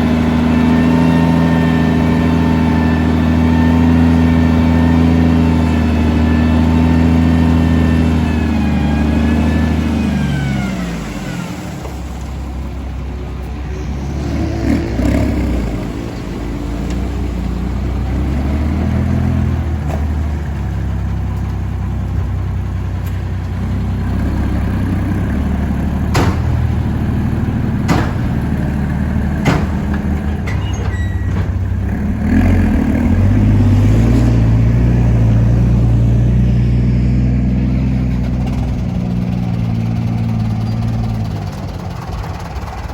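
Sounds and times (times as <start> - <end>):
heavy diesel engine running: 0.0 - 42.9
sharp knocks: 26.1 - 26.9, 27.8 - 28.7, 29.4 - 30.6.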